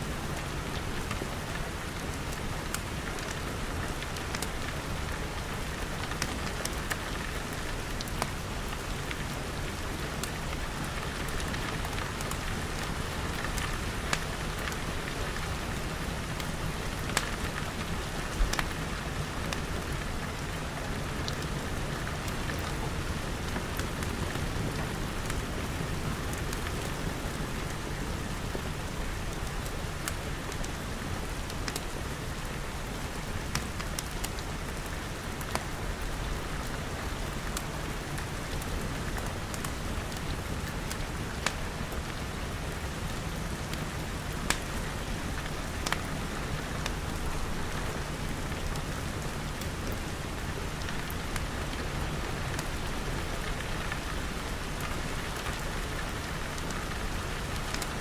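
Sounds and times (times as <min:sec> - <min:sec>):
rain pattering on glass: 0:00.7 - 0:58.0
wood fire crackling and popping: 0:04.1 - 0:04.6, 0:05.6 - 0:20.5, 0:33.4 - 0:34.4, 0:39.2 - 0:42.0, 0:44.5 - 0:44.8, 0:45.4 - 0:48.8.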